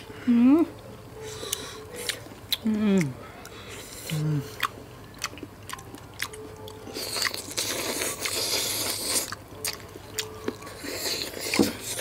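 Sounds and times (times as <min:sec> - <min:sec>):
chewing and crunching: 0:01.2 - 0:12.0.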